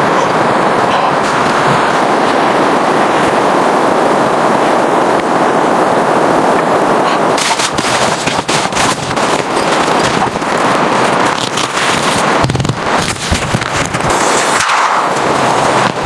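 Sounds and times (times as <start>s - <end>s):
steady rushing noise: 0.0s - 16.0s
crackling and popping: 6.5s - 16.0s.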